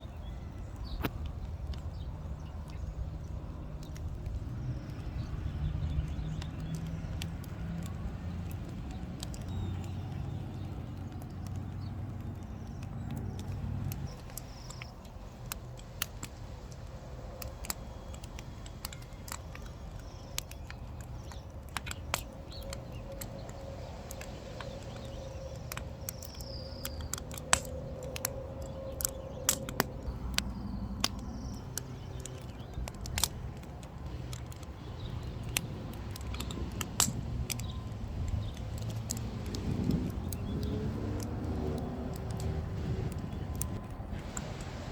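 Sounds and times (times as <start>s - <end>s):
wood fire crackling: 0.0s - 44.9s
low rumble: 26.5s - 44.9s.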